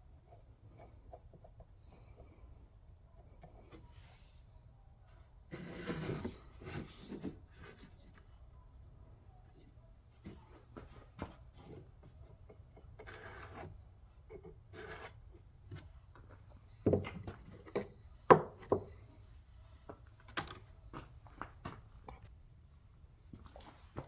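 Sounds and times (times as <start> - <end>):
tool scraping: 5.5 - 8.2, 11.5 - 19.1.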